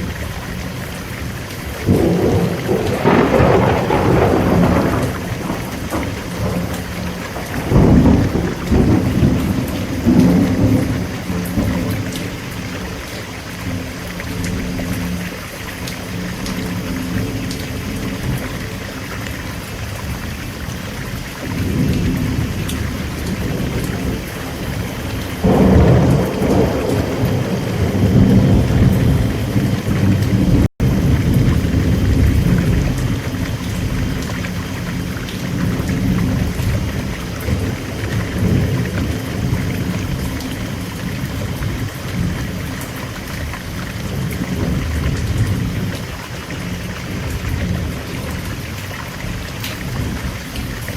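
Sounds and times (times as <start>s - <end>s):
steady rain: 0.0s - 50.9s
rolling thunder: 1.8s - 12.8s, 21.4s - 50.9s.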